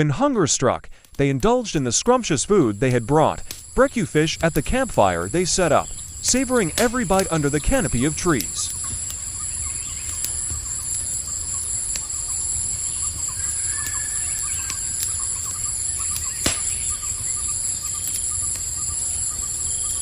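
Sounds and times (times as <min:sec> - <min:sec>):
insects chirring: 0:01.1 - 0:20.0
faint bird calls: 0:05.7 - 0:20.0.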